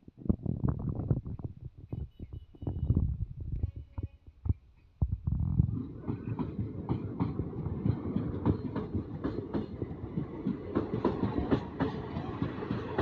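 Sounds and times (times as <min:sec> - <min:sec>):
train rumbling: 0:05.1 - 0:13.0
train wheels clicking over rail joints: 0:05.7 - 0:13.0.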